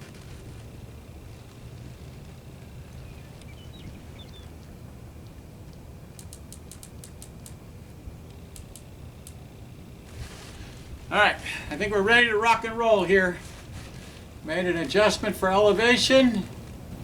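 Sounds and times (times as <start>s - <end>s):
wind rumble on microphone: 0.0s - 12.2s.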